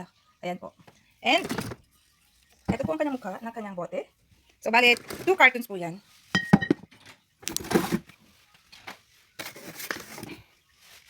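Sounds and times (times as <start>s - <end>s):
cardboard carton rustling: 1.3s - 1.8s, 7.6s - 8.2s, 9.4s - 10.4s
glass bottles clinking: 6.4s - 7.0s.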